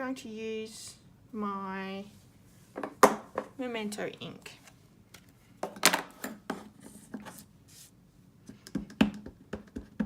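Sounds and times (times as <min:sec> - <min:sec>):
soft rubbing: 0:06.7 - 0:08.0
clicks and taps on table: 0:08.5 - 0:10.0.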